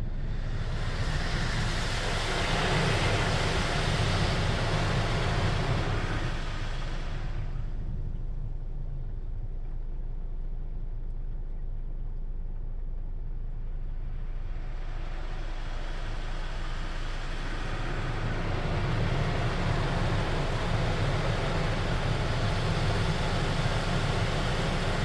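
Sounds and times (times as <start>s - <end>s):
car wash equipment rumbling: 0.0s - 10.7s, 12.4s - 25.0s
hissing water spray: 14.6s - 25.0s.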